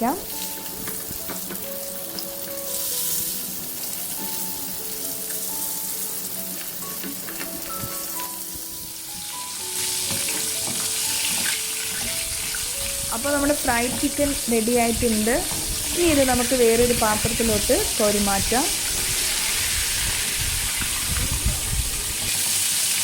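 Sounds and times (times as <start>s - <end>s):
chicken deep-frying in oil: 0.0s - 23.0s.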